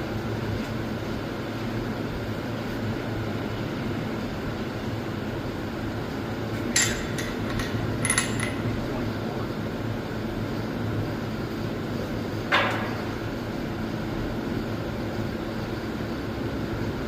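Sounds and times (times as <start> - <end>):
steady low hum: 0.0 - 17.0
metal tools clinking: 6.8 - 8.7.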